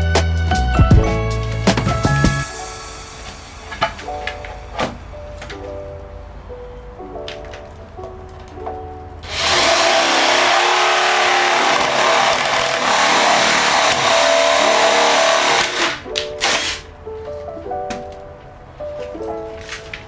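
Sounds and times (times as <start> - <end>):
background music: 0.0 - 20.0
electric woodworking power tool: 9.2 - 16.8.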